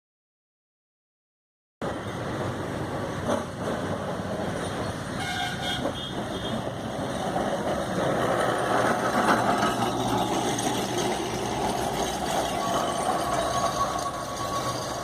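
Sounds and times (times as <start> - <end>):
tram rumbling on rails: 1.8 - 15.0
vehicle horn toot: 5.2 - 6.6.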